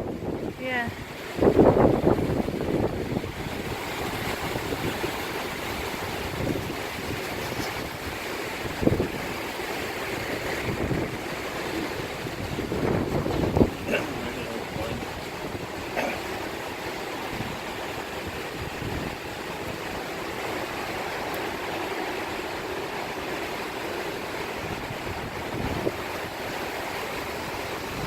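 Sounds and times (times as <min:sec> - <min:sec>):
wind rushing: 0:00.0 - 0:09.4, 0:10.2 - 0:15.8
wind gusts buffeting microphone: 0:00.0 - 0:28.0.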